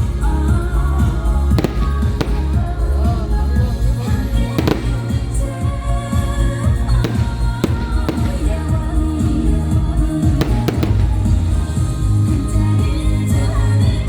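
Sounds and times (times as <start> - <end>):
music with heavy bass beat: 0.0 - 14.0
fireworks bangs: 1.5 - 12.6.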